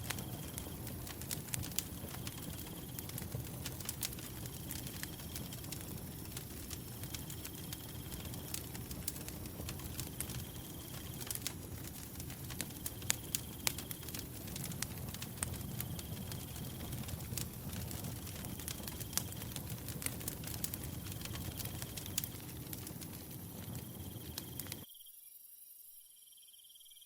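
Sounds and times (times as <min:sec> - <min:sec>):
wood fire crackling: 0:00.0 - 0:24.8
cricket chirping: 0:06.8 - 0:08.9, 0:09.9 - 0:14.5, 0:15.3 - 0:27.0.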